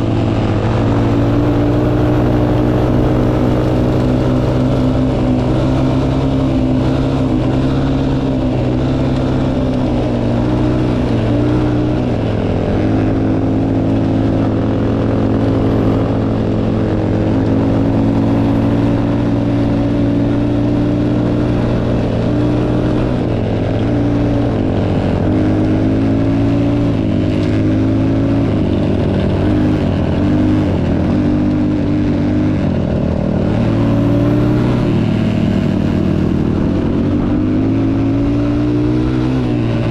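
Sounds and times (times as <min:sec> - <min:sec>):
motocross bike engine running: 0:00.0 - 0:39.9.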